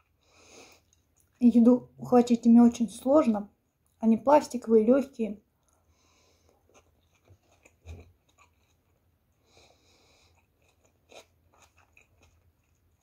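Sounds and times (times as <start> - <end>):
faint chewing of fried food: 0.0 - 1.6, 5.4 - 13.0.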